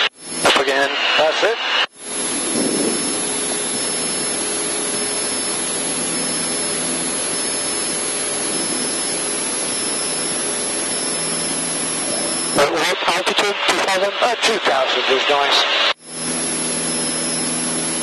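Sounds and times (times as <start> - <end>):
airplane engine and propeller droning: 0.0 - 18.0.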